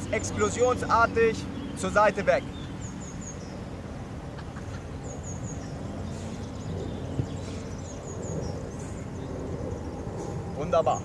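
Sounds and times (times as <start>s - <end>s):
bird chirping: 0.0s - 11.0s
low outdoor rumble: 0.0s - 11.0s
soft thud: 7.1s - 7.4s.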